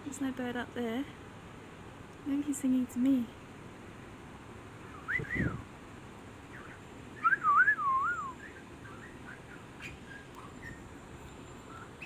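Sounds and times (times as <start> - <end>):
bird whistling: 4.9 - 5.6, 6.5 - 10.8.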